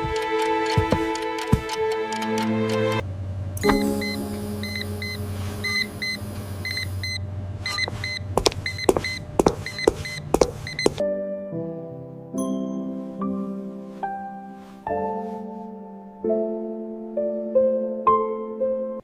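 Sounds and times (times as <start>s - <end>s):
sharp clicks: 0.0s - 3.0s
high electronic beeps: 3.7s - 10.9s.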